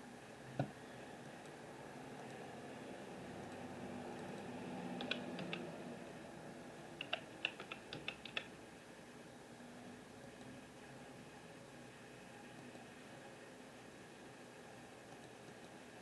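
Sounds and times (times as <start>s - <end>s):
light clicks: 4.2s - 5.7s, 7.0s - 8.5s.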